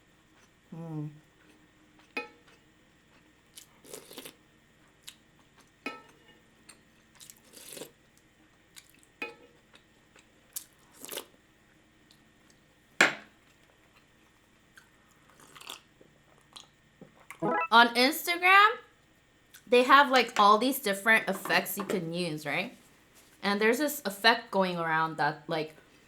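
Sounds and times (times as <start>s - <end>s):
person chewing: 1.4s - 4.4s, 7.2s - 7.9s, 9.7s - 11.3s, 14.8s - 17.7s.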